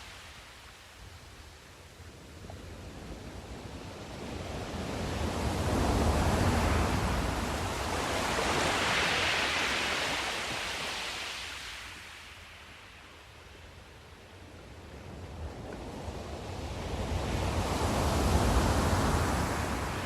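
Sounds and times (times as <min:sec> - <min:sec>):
wave washing in: 0:04.6 - 0:12.1
ocean waves breaking: 0:04.6 - 0:12.2.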